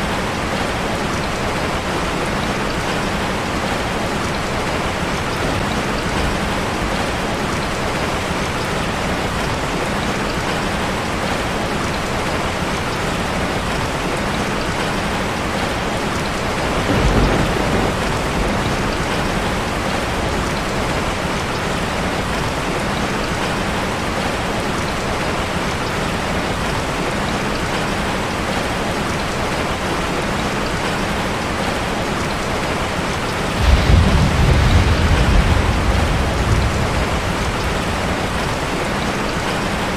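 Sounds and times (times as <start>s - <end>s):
heavy rain on metal roof: 0.0s - 39.9s
thunder rumbling: 16.3s - 21.6s, 33.4s - 39.9s.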